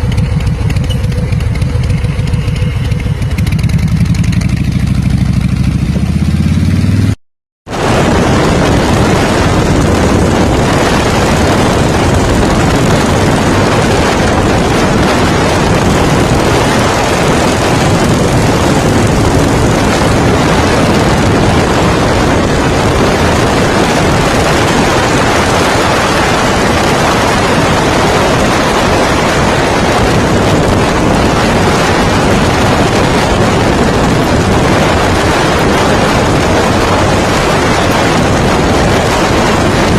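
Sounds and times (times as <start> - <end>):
motorcycle idling: 0.0 - 7.1, 8.1 - 39.9
wind on microphone: 7.7 - 39.9.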